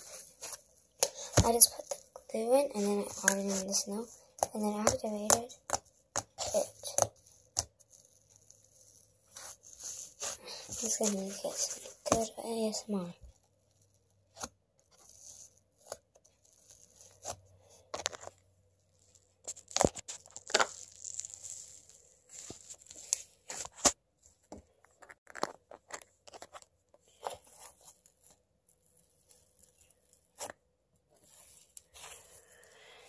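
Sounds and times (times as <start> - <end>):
slime crackling and popping: 19.0 - 23.2.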